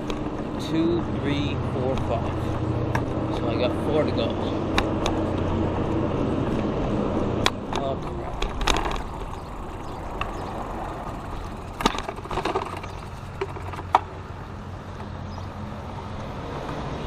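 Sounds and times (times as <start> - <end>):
bicycle road rumble: 0.0 - 17.0
sharp clicks and knocks: 2.9 - 3.4, 7.4 - 9.5, 11.8 - 14.1
car running close by: 8.6 - 17.0.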